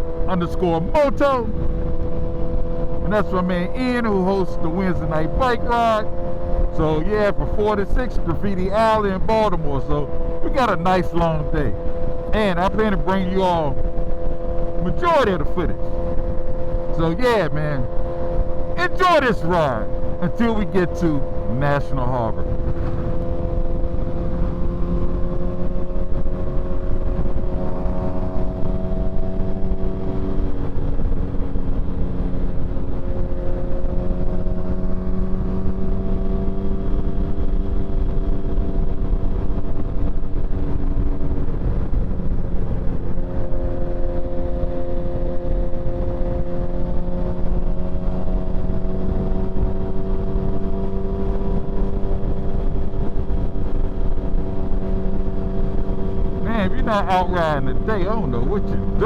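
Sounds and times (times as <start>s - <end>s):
motorcycle engine running: 0.0s - 18.8s, 22.2s - 59.0s
wind rumble on microphone: 22.4s - 56.5s.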